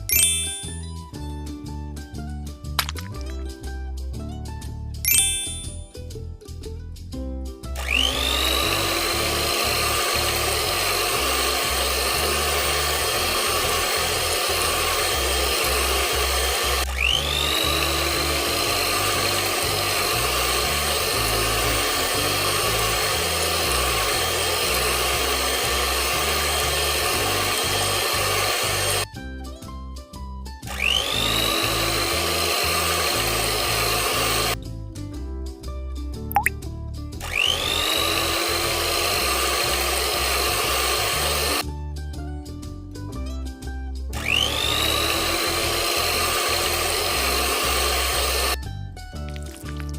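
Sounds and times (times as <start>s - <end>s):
background music with bass: 0.0s - 49.9s
electric kitchen mixer whining: 7.8s - 29.1s, 30.7s - 34.6s, 37.2s - 41.6s, 44.2s - 48.6s.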